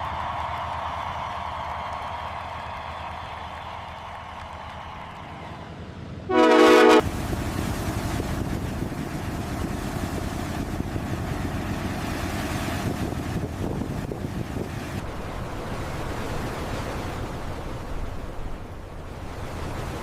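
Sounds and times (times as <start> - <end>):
ship's horn blast: 6.3 - 7.2
rushing wind and water: 6.3 - 20.0.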